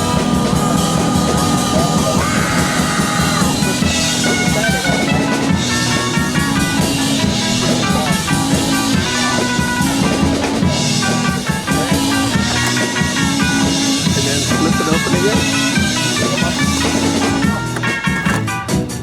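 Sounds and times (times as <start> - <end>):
instrumental rock band playing: 0.0 - 19.0.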